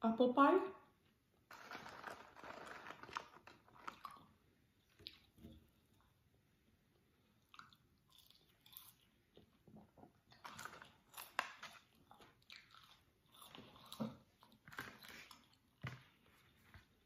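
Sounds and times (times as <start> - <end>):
biting crunching and chewing food: 1.5 - 4.4, 7.5 - 9.2, 10.3 - 15.8.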